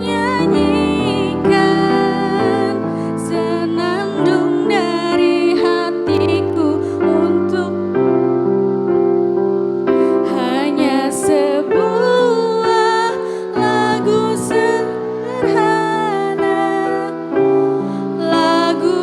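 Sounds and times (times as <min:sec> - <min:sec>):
choir singing: 0:00.0 - 0:08.0
keyboard chords: 0:00.0 - 0:19.0.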